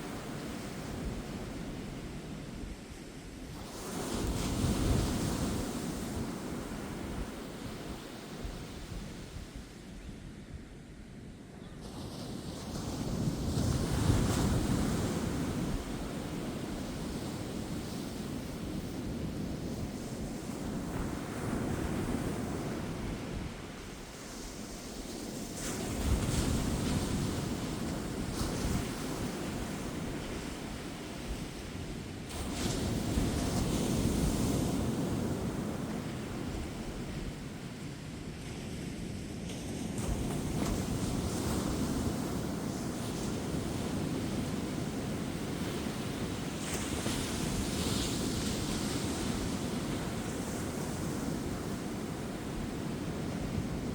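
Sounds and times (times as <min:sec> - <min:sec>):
ocean surf breaking on beach: 0:00.0 - 0:09.8, 0:11.6 - 0:53.9.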